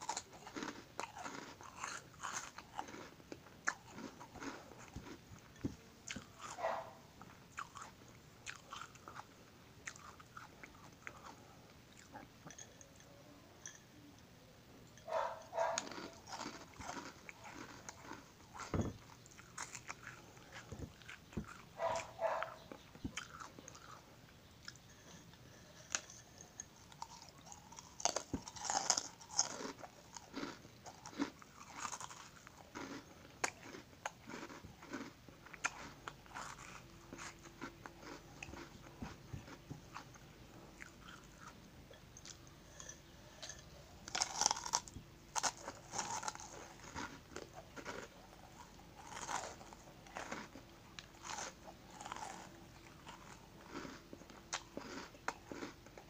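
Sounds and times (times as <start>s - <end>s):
crunching snack sticks: 0.0s - 12.7s, 15.0s - 24.0s, 24.6s - 40.2s, 40.8s - 56.0s.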